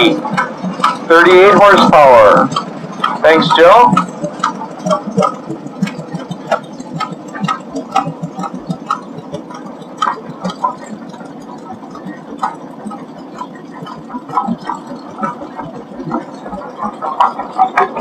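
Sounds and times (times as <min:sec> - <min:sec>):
low engine rumble: 0:00.0 - 0:18.0
tractor exhaust popping: 0:00.0 - 0:18.0.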